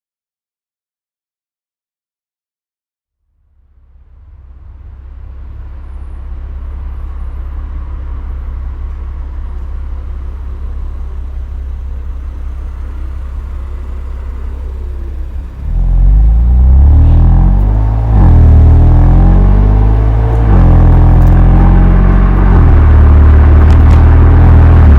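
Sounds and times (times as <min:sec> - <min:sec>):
car engine idling and revving: 0:03.3 - 0:24.9.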